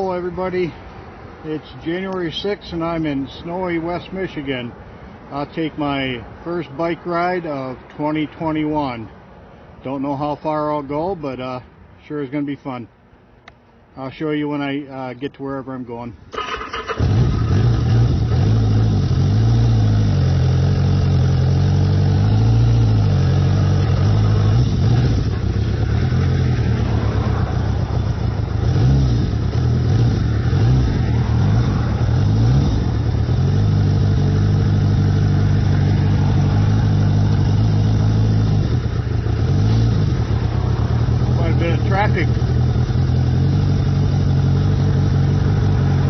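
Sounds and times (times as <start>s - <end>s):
motorcycle engine running: 16.5s - 46.0s.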